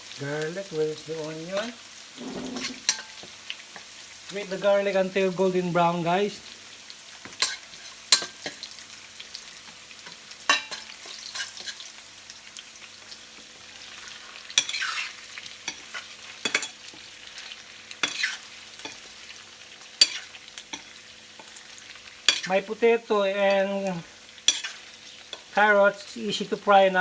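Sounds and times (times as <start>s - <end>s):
garlic sizzling in oil: 0.0s - 27.0s
utensil scraping pan: 1.6s - 3.3s, 18.0s - 19.0s, 20.0s - 21.5s, 24.5s - 25.5s.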